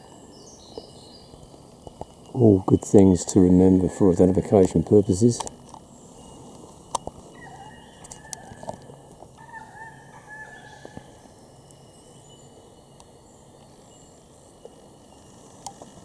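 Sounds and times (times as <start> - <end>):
bird warbling call: 7.2 - 11.4.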